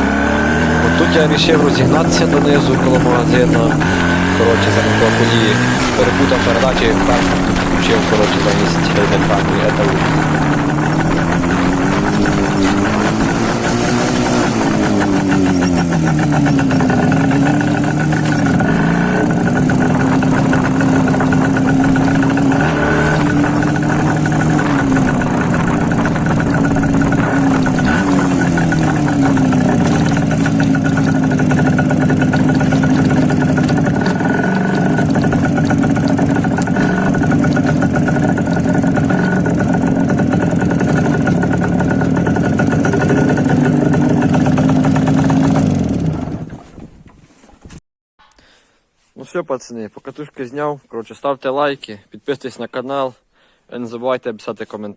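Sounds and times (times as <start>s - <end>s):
two-stroke motorcycle engine revving: 0.0s - 46.8s.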